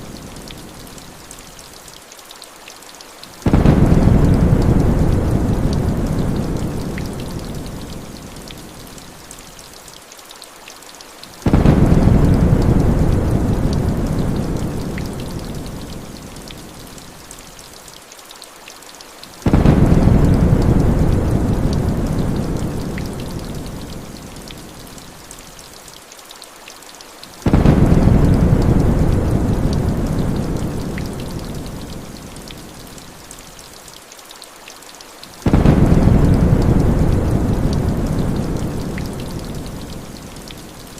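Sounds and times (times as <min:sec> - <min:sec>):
heavy rain hissing: 0:03.2 - 0:09.8, 0:11.2 - 0:17.8, 0:19.1 - 0:25.8, 0:27.1 - 0:33.8, 0:35.1 - 0:40.9
low thunder rumble: 0:03.5 - 0:07.5, 0:11.5 - 0:15.5, 0:19.5 - 0:23.5, 0:27.5 - 0:31.6, 0:35.5 - 0:39.9.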